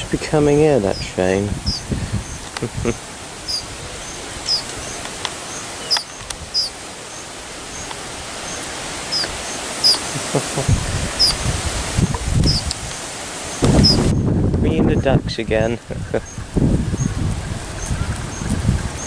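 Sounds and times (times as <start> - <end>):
dull low thumps: 0.0 - 3.8, 10.6 - 12.8, 13.6 - 19.0
outdoor background hiss: 0.0 - 19.0
small bird chirping: 1.6 - 10.4, 11.2 - 12.8, 13.5 - 14.2.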